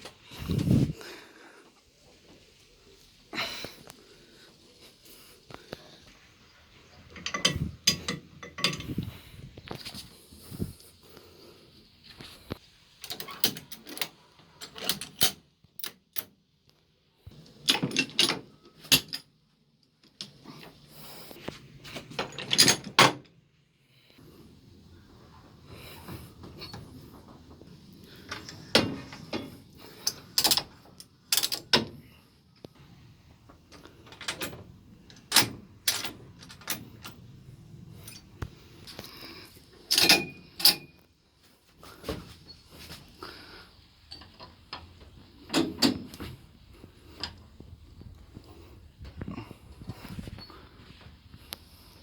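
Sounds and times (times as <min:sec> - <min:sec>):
metal fittings clicking and clattering: 0:07.0 - 0:10.0, 0:28.0 - 0:32.0, 0:38.0 - 0:41.0.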